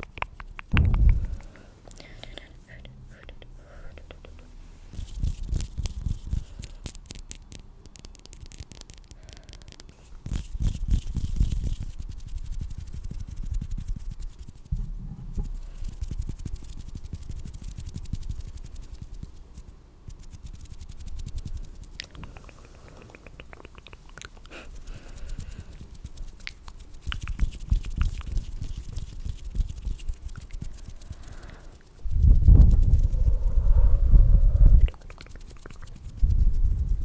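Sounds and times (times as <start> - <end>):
soft low thuds: 0.7 - 1.8
hands rubbing together: 3.4 - 6.7, 15.5 - 37.0.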